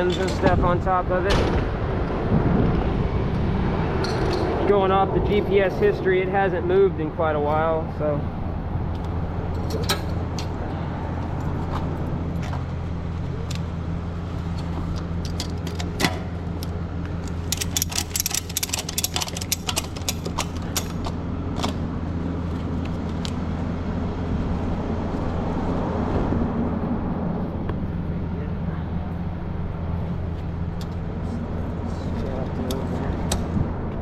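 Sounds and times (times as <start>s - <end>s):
truck engine humming: 0.0s - 34.0s
metallic clicks and rattles: 14.5s - 21.8s.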